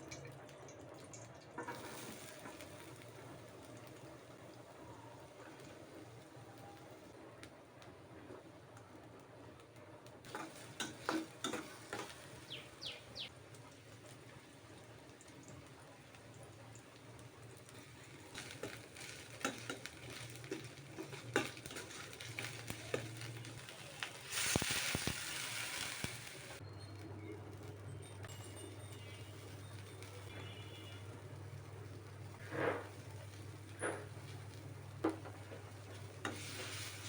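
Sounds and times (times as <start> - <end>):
food frying in a pan: 0.0 - 26.6, 27.4 - 37.0
utensils knocking on pan: 10.3 - 12.3, 18.4 - 23.3.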